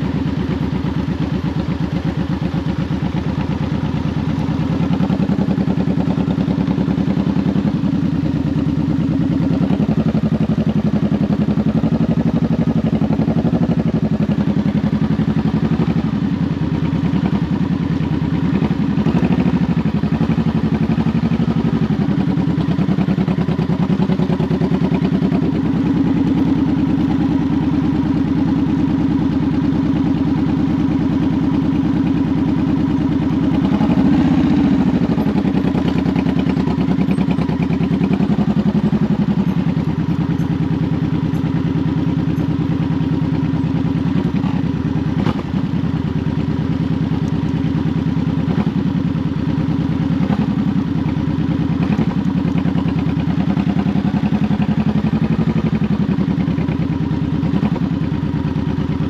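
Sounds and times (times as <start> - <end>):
motorcycle engine running: 0.0 - 59.0
engine revving: 33.3 - 39.5.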